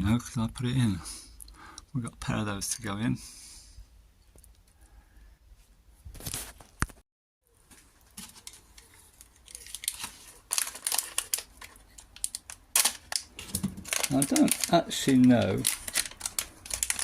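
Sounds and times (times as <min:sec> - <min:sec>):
rustling and crinkling: 0:05.6 - 0:17.0.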